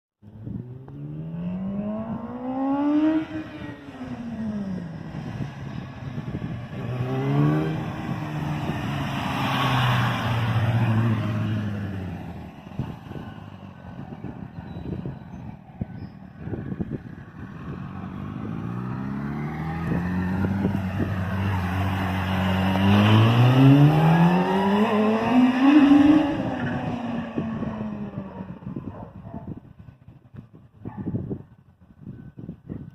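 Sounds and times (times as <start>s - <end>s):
motorcycle engine revving: 0.3s - 29.0s.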